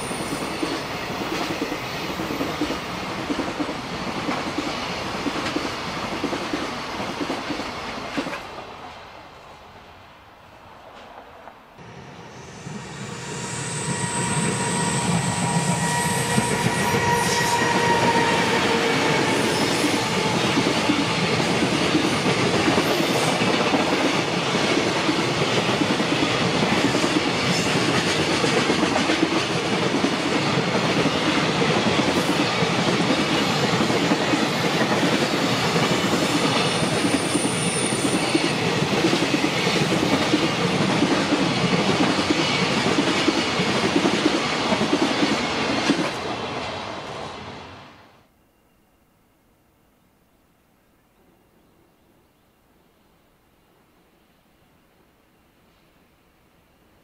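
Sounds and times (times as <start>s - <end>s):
high whine: 11.8s - 18.4s.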